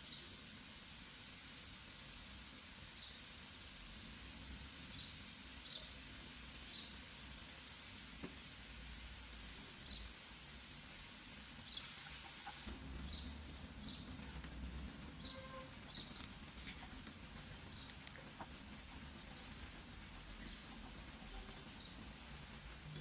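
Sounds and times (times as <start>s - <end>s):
low steady hiss: 0.0s - 23.0s
small bird chirping: 4.9s - 6.0s, 6.6s - 7.0s, 11.6s - 14.2s, 15.1s - 22.1s.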